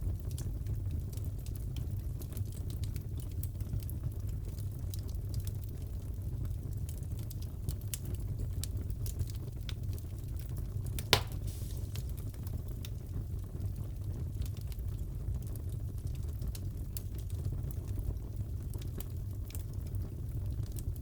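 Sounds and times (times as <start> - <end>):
wood fire crackling: 0.1 - 21.0
fire popping: 11.0 - 13.2.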